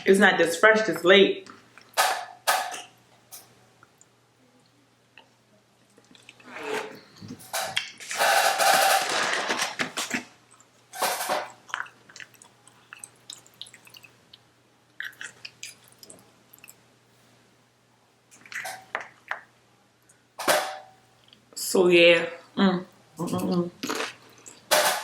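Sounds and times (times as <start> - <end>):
crunching and smacking: 7.8 - 14.4, 15.0 - 16.8
chewing and mouth noises: 10.1 - 16.8.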